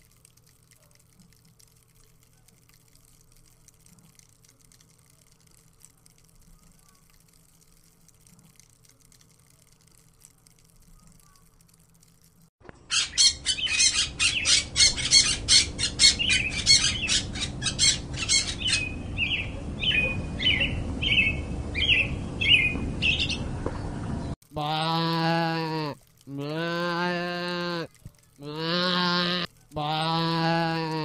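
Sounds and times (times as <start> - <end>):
birds chirping: 12.8 - 24.4.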